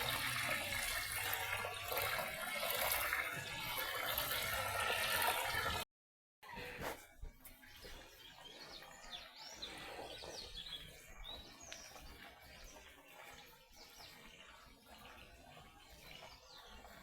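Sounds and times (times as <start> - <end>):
small birds chirping faintly: 6.5 - 17.0.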